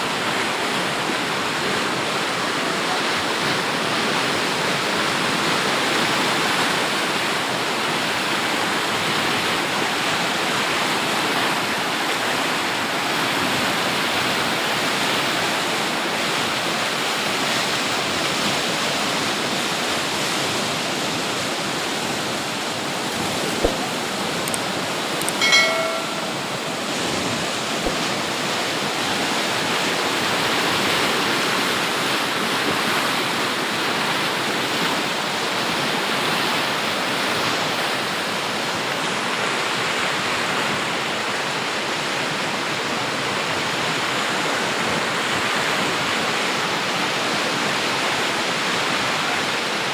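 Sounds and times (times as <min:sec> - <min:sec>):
water rushing through dam gates: 0:00.0 - 0:49.9
click: 0:24.4 - 0:24.6, 0:25.2 - 0:25.4.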